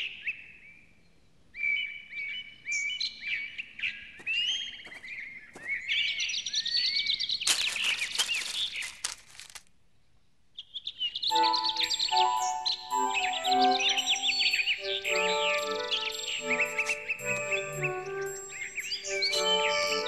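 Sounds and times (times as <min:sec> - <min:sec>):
small birds chirping and twittering: 0:00.0 - 0:09.2, 0:10.5 - 0:20.0
dense buzzy bird trill: 0:11.3 - 0:20.0.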